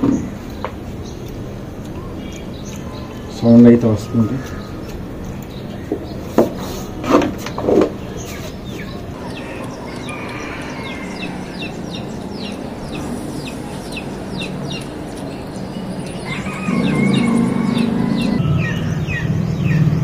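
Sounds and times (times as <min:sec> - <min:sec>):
small bird chirping: 0:00.1 - 0:06.8, 0:07.4 - 0:20.0.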